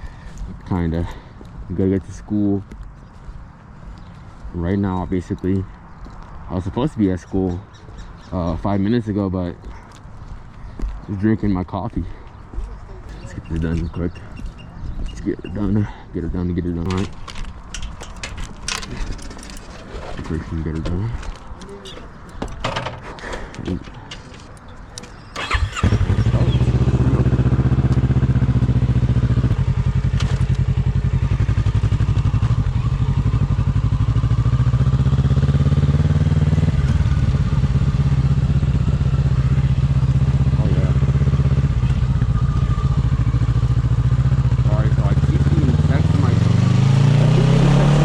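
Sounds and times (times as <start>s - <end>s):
motorcycle engine idling: 25.4s - 46.4s.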